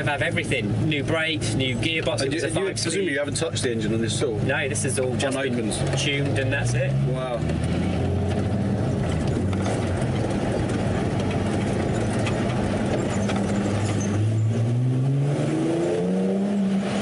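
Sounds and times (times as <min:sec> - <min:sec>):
tyre and road noise: 0:00.0 - 0:17.0
truck engine revving: 0:03.4 - 0:17.0.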